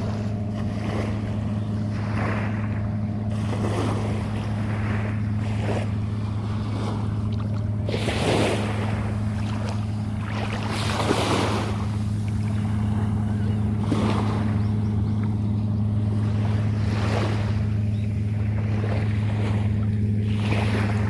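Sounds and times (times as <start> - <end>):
sea waves washing in: 0.0 - 21.0
steady low hum: 0.0 - 21.0.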